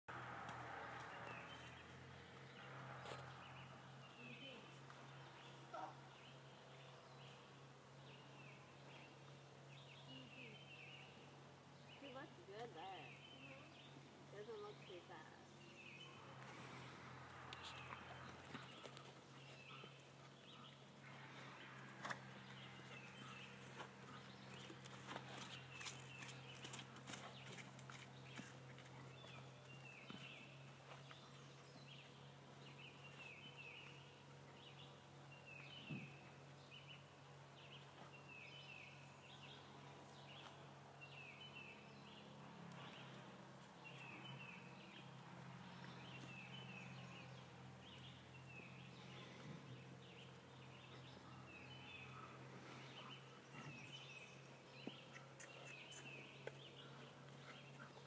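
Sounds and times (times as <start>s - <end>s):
bird chirping calls: 43.8s - 58.0s.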